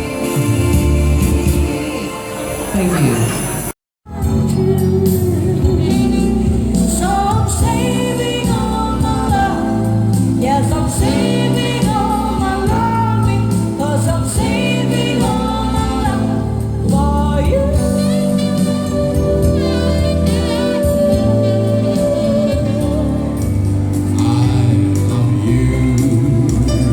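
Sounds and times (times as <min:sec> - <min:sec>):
live band playing dinner music: 0:00.0 - 0:26.9
person singing: 0:04.1 - 0:23.4, 0:24.0 - 0:26.9.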